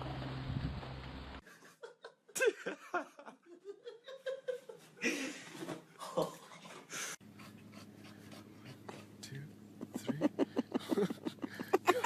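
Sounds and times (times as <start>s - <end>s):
person laughing: 1.5s - 6.4s, 9.8s - 12.0s.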